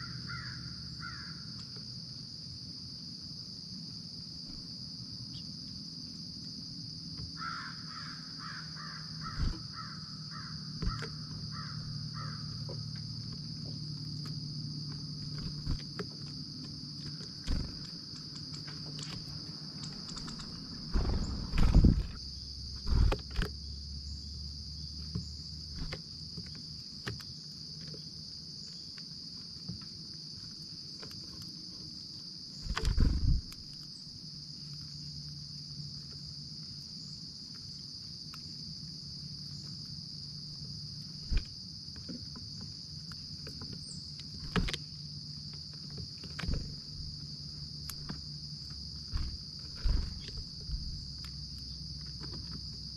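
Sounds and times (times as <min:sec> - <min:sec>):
crickets trilling: 0:00.0 - 0:52.9
loud knocks and thumps: 0:20.9 - 0:22.2.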